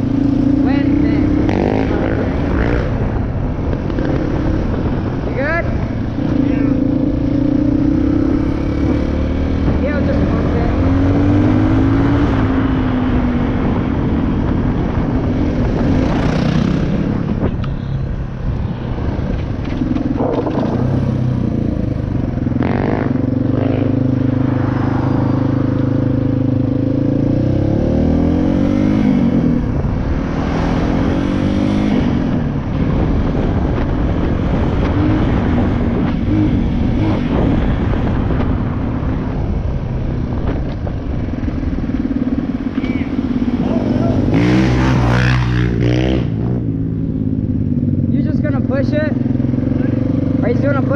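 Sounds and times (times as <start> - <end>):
dirt bike engine revving: 0.0 - 3.0, 22.6 - 29.6, 42.3 - 47.2.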